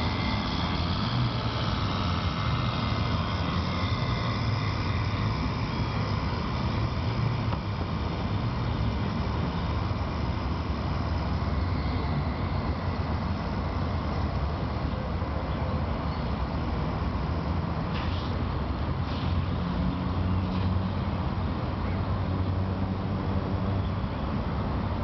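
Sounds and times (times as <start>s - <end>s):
model boat motor humming: 0.0s - 25.0s.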